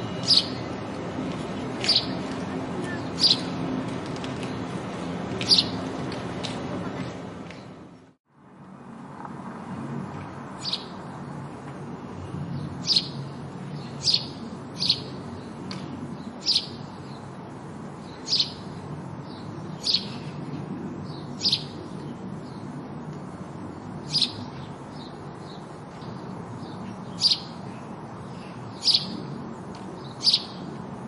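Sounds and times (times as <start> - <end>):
sparrow chirping: 0.0 - 0.8, 1.8 - 3.6, 5.4 - 5.8, 10.6 - 11.1, 12.5 - 17.3, 18.0 - 20.4, 21.0 - 22.8, 23.8 - 29.4, 30.0 - 30.7.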